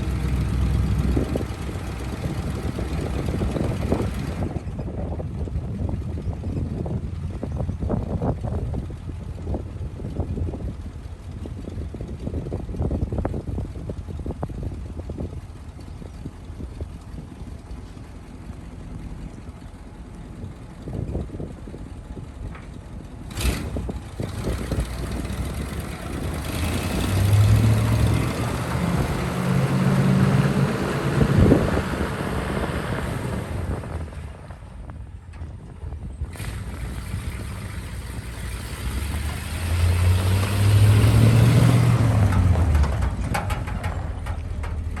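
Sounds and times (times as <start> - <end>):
truck engine revving: 0.0 - 4.6, 23.2 - 34.6, 36.2 - 45.0.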